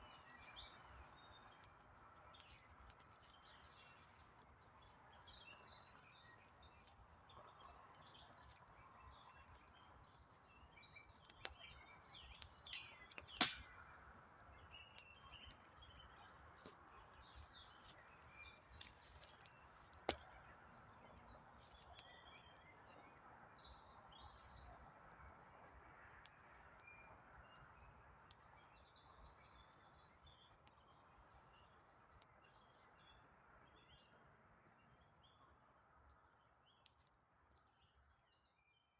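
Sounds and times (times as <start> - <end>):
faint birdsong: 0.0 - 38.9
campfire popping: 11.2 - 18.0.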